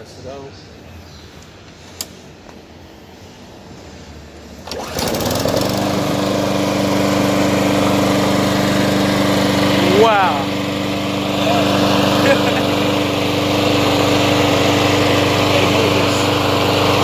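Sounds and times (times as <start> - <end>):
lawn mower engine starting and running: 4.6 - 17.0.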